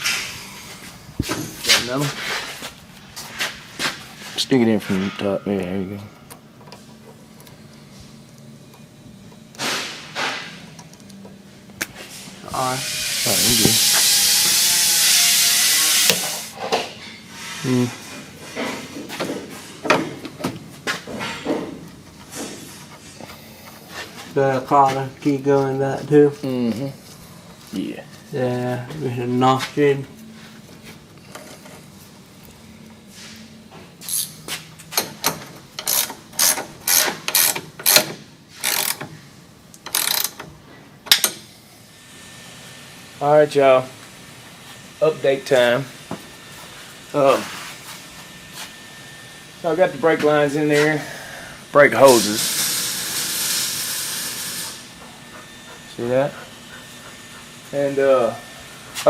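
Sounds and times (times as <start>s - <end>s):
gas hissing under pressure: 12.1s - 16.6s, 50.6s - 56.0s
hand tools clicking on metal: 35.0s - 39.1s, 39.7s - 40.5s
ratchet wrench ratcheting: 35.8s - 39.1s, 39.8s - 40.4s.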